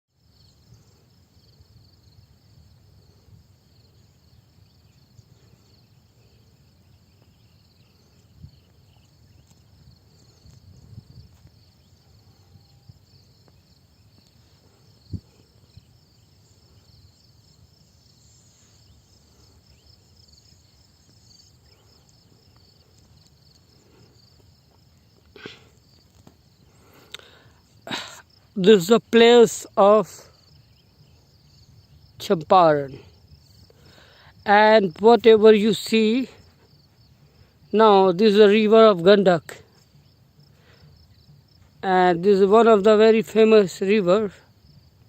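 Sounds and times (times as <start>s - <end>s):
insects chirring: 0.2s - 45.0s.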